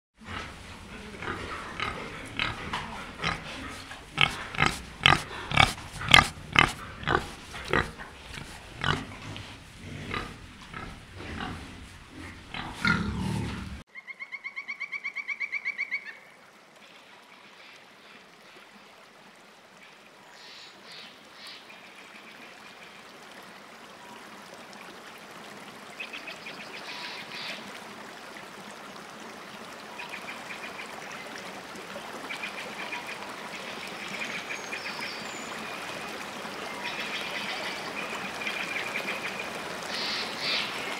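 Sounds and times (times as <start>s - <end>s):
boar squealing and grunting: 0.3s - 13.8s.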